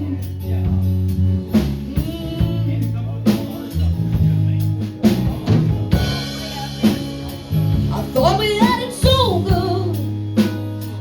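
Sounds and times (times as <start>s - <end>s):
lead vocal singing: 0.0s - 3.9s
bass notes: 0.0s - 11.0s
guitar: 0.0s - 11.0s
drum kit hits: 1.6s - 11.0s.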